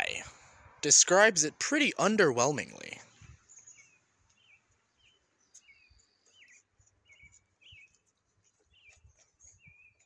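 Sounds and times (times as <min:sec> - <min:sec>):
faint bird chirps: 0:02.9 - 0:10.0.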